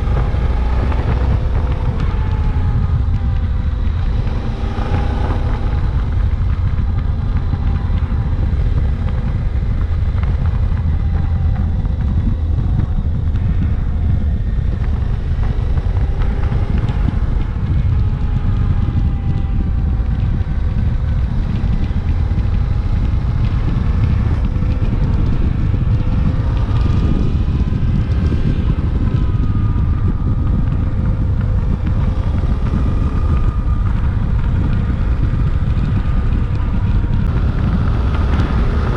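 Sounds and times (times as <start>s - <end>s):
motorcycle engine running: 0.0s - 38.9s
wind rush over microphone: 0.0s - 38.9s.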